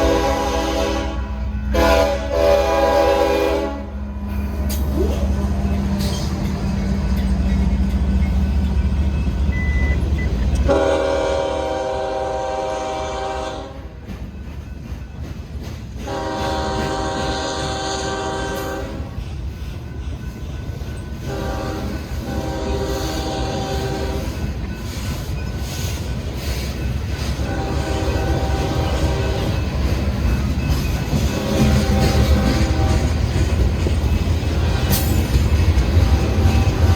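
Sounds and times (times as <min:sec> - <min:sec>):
train air horn blasts: 0:00.0 - 0:04.3, 0:10.6 - 0:14.0, 0:16.0 - 0:19.2, 0:21.2 - 0:24.4, 0:27.4 - 0:29.6, 0:31.2 - 0:33.4
diesel locomotive engine rumbling: 0:00.0 - 0:36.9
train rail noise: 0:00.0 - 0:36.9.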